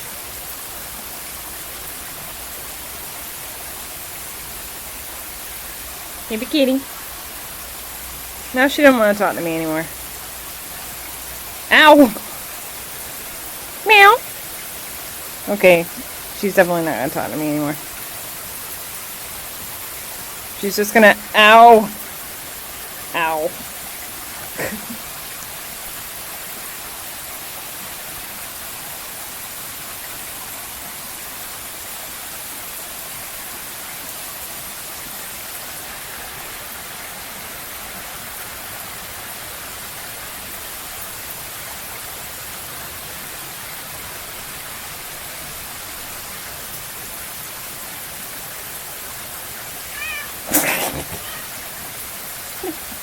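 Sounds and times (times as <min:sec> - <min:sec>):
rain hissing: 0:00.0 - 0:53.0
cat meowing: 0:49.8 - 0:51.9.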